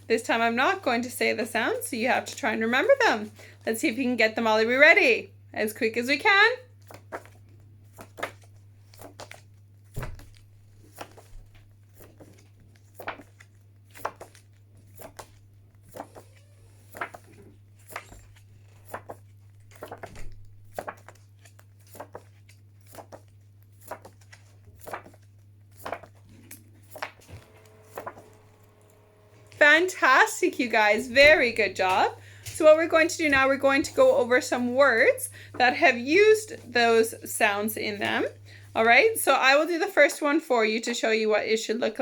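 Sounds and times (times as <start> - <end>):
low electrical hum: 0.0 - 42.0
paper cards flicking: 6.8 - 29.6.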